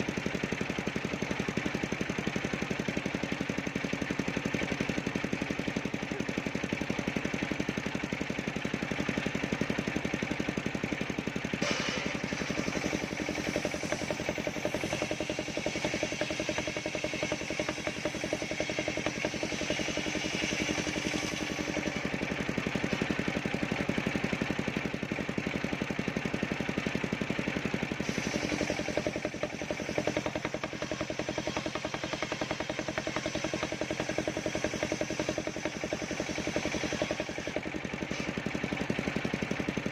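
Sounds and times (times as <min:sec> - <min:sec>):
saw engine running: 0:00.0 - 0:39.9
saw blade cutting log: 0:11.4 - 0:23.7, 0:28.0 - 0:39.8.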